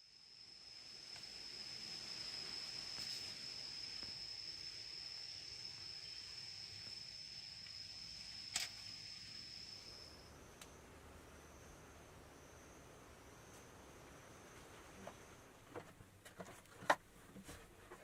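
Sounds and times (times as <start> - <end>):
high-pitched insect call: 0.0 - 15.4
sharp click: 8.5 - 8.8.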